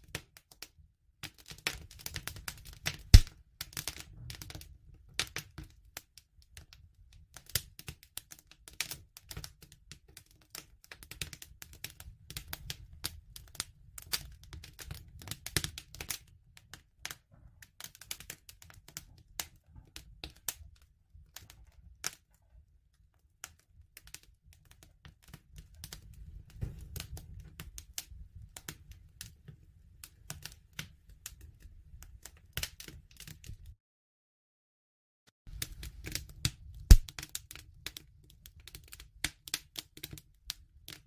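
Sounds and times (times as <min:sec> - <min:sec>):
campfire crackling: 0:01.8 - 0:04.0, 0:35.5 - 0:38.0.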